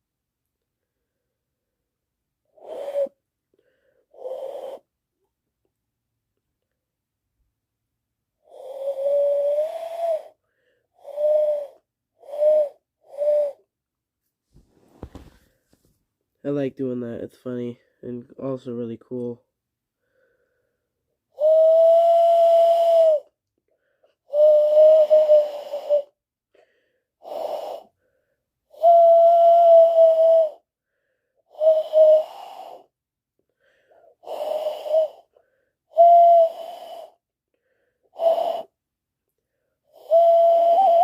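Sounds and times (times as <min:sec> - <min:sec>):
person whistling bird call: 0:02.6 - 0:03.2, 0:21.4 - 0:23.3, 0:28.8 - 0:30.6, 0:36.0 - 0:37.1, 0:40.0 - 0:41.0.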